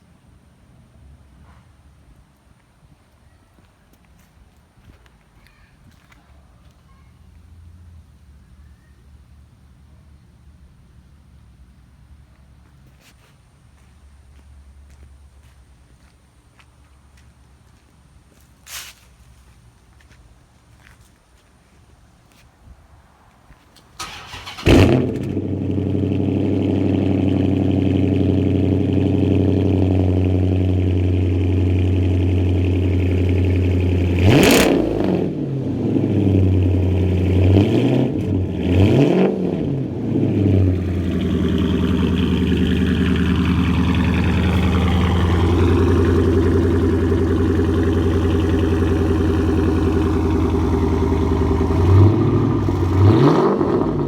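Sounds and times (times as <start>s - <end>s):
car engine idling and revving: 24.0s - 54.0s.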